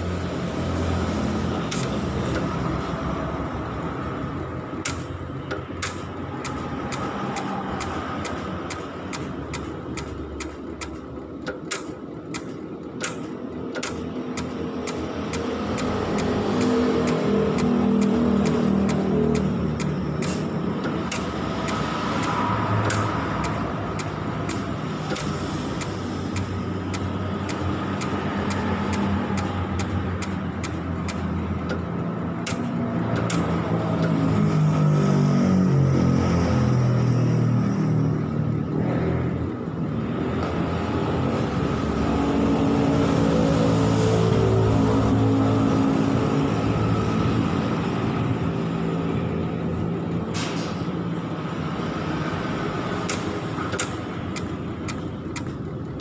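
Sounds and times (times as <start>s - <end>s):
sharp welding clicks: 1.7s - 2.6s, 4.8s - 34.2s, 53.0s - 56.0s.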